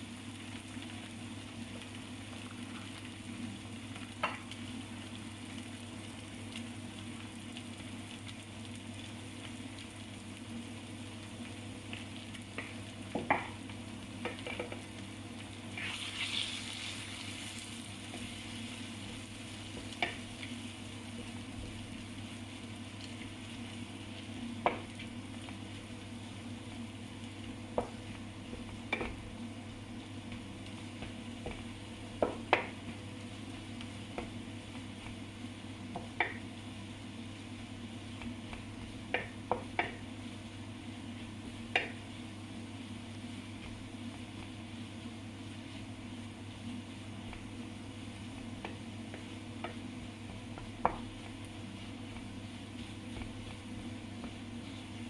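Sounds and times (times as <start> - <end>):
food sizzling on a griddle: 15.7 - 25.8.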